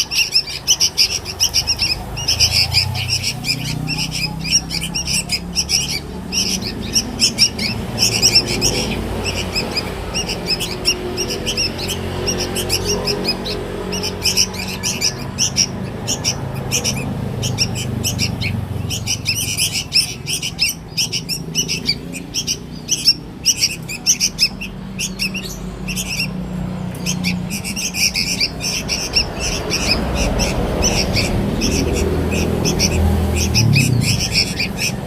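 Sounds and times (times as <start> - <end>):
bird chick chirping: 0.0 - 35.0.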